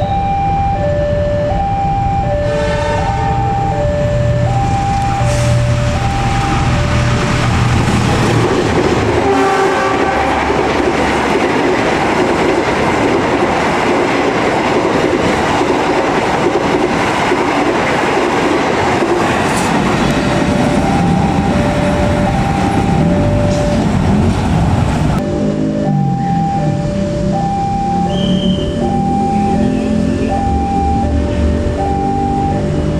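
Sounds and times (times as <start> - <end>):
two-tone crossing alarm: 0.0 - 32.9
train horn blast: 2.5 - 3.7, 5.1 - 11.0, 28.0 - 30.7
train wheels on rails: 3.9 - 26.0.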